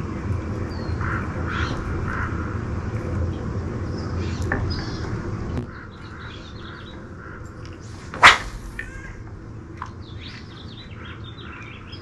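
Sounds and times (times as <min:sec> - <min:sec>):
birds chirping: 0:03.2 - 0:12.0
low rumble: 0:07.8 - 0:09.8.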